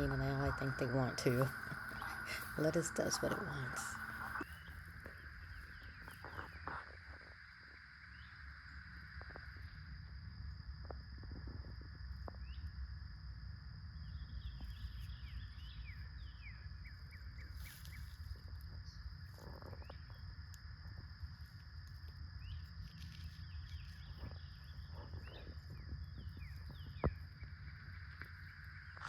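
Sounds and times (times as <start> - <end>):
low rumble: 0.0 - 6.6
birds chirping: 0.0 - 6.8
insects droning: 0.0 - 29.0.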